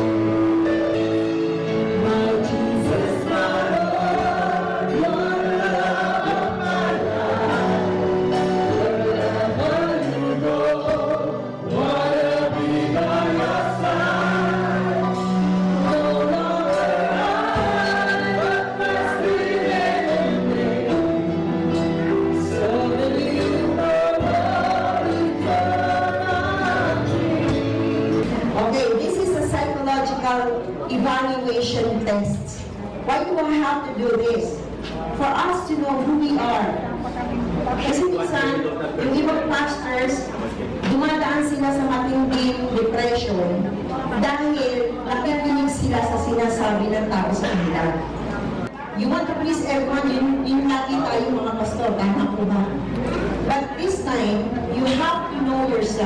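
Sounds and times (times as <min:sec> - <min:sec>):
sustained instrumental chords: 0:00.0 - 0:28.6
choir singing gospel: 0:00.0 - 0:29.7.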